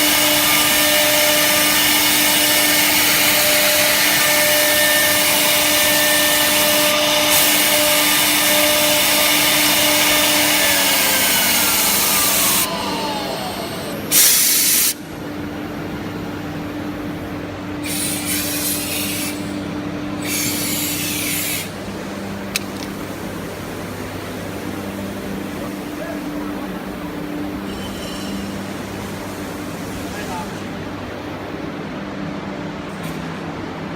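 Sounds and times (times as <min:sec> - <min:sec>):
router spindle whine: 0:00.0 - 0:15.0, 0:17.8 - 0:29.3
steady hum: 0:00.0 - 0:32.9
compressed air hiss: 0:14.0 - 0:15.0, 0:17.8 - 0:19.6, 0:20.2 - 0:21.8.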